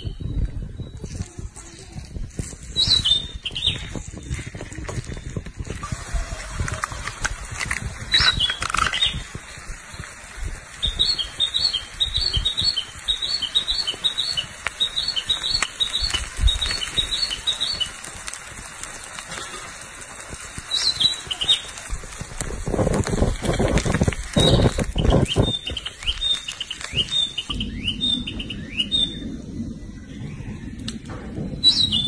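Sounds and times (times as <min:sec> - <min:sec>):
bird chirping: 0:10.8 - 0:18.0, 0:24.3 - 0:30.6, 0:31.4 - 0:32.0.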